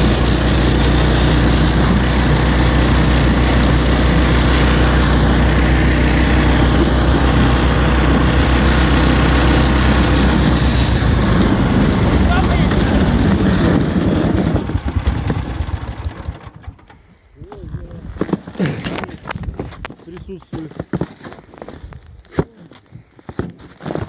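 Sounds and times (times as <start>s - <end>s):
road and wind noise: 0.0s - 16.9s
vehicle engine droning: 0.0s - 17.0s.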